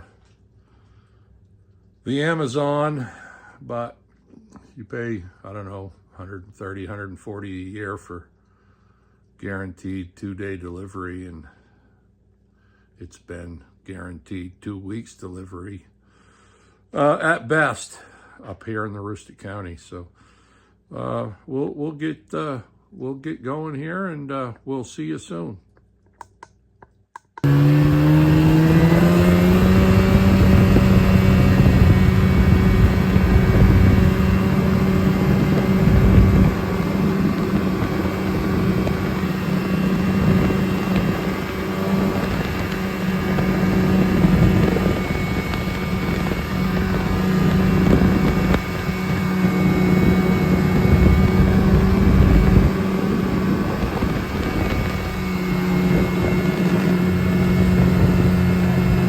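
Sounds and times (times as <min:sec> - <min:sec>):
constant rushing noise: 0:27.4 - 0:59.0
vehicle engine accelerating: 0:27.4 - 0:59.0.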